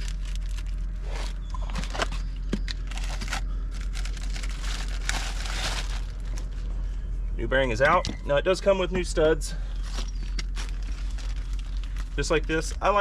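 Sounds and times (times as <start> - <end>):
packaging crinkling and tearing: 0.0 - 6.6, 9.8 - 12.8
packaging rustle: 0.0 - 6.7, 9.8 - 12.8.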